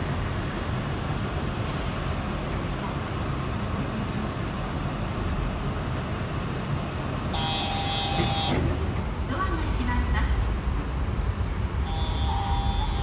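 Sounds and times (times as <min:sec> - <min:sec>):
train running rumble: 0:00.0 - 0:13.0.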